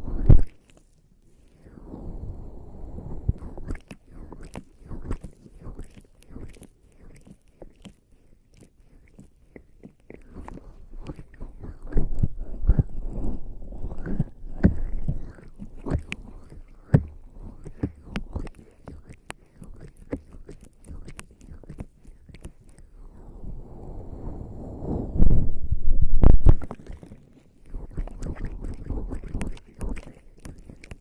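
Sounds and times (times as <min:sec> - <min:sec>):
wet squelching of skin rubbing: 0:03.4 - 0:23.0, 0:26.3 - 0:31.0.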